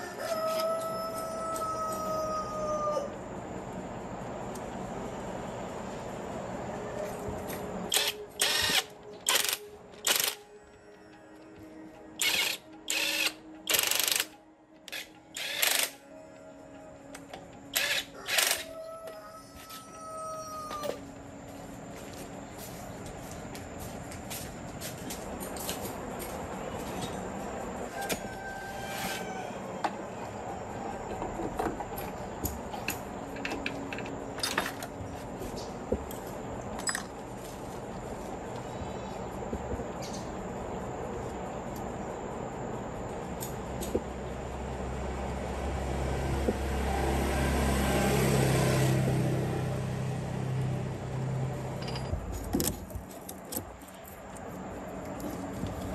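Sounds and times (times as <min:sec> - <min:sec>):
faint background music: 0:00.0 - 0:55.9
metal tools clinking: 0:31.9 - 0:35.0, 0:36.7 - 0:37.2, 0:51.8 - 0:54.2.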